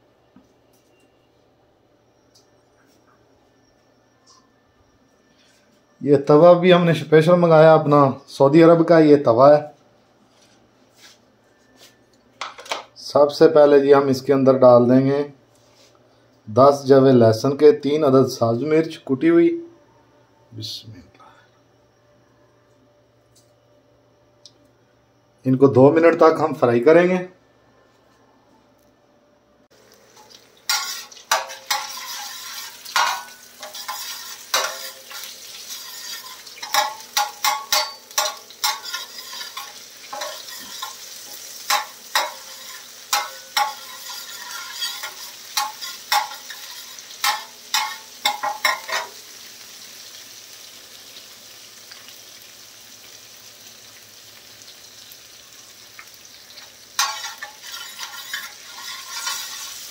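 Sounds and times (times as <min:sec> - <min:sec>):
garlic sizzling in oil: 0:29.7 - 0:59.9
metal spatula scraping pan: 0:30.7 - 0:49.2, 0:57.0 - 0:59.9.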